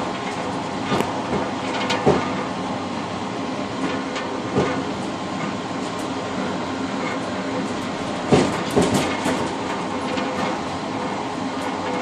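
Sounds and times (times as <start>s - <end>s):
train wheels rumbling on rail: 0.0s - 12.0s
wheel knocks over rail joint: 8.3s - 10.6s.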